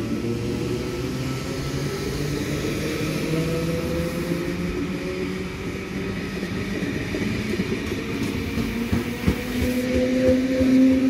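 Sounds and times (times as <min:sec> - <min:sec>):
train carriages rumbling: 0:06.4 - 0:11.0.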